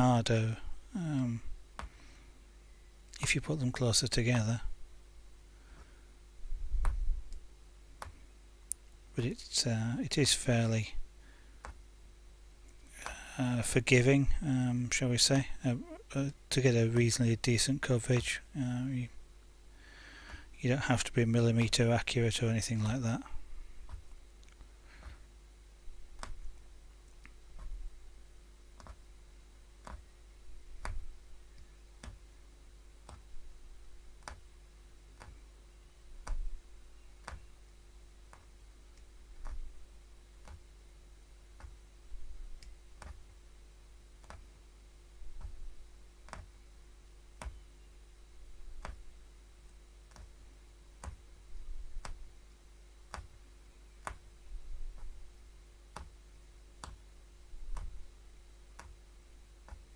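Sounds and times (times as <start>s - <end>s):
faint steady hum: 0.0s - 59.9s
punch needle clicking through fabric: 8.0s - 8.2s, 26.2s - 26.6s, 27.2s - 27.8s, 28.8s - 29.0s, 29.8s - 30.1s, 30.8s - 31.1s, 32.0s - 32.2s, 33.0s - 33.4s, 34.2s - 34.5s, 35.2s - 35.4s, 36.2s - 36.6s, 37.2s - 37.5s, 38.3s - 38.5s, 39.4s - 39.7s, 40.4s - 40.7s, 41.6s - 41.8s, 42.6s - 43.4s, 44.2s - 44.5s, 45.4s - 46.6s, 47.4s - 47.6s, 48.7s - 49.1s, 50.1s - 50.4s, 51.0s - 52.3s, 53.1s - 53.4s, 54.0s - 54.3s, 55.9s - 56.2s, 56.8s - 57.0s, 57.6s - 58.0s, 58.7s - 59.0s, 59.6s - 59.9s.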